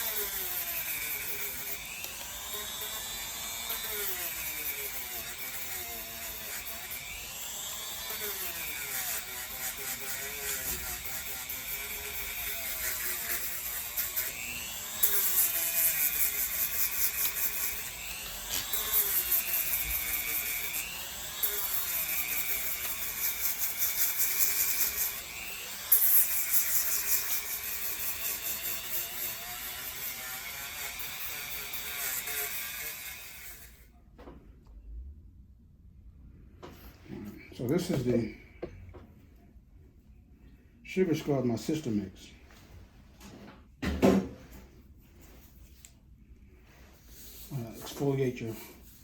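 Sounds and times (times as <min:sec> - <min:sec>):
rotary drill grinding skin: 0:00.0 - 0:33.8, 0:47.0 - 0:49.0.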